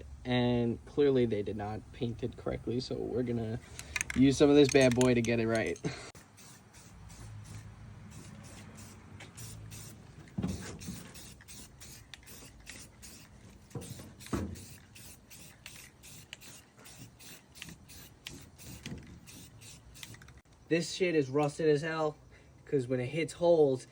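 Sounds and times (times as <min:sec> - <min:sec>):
aerosol can spraying: 0:06.2 - 0:20.3.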